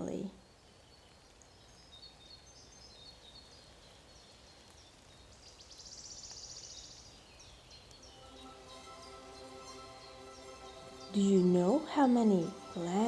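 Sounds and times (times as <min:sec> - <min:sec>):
bird chirps: 0:00.0 - 0:13.0
faint steady hiss: 0:00.0 - 0:13.0.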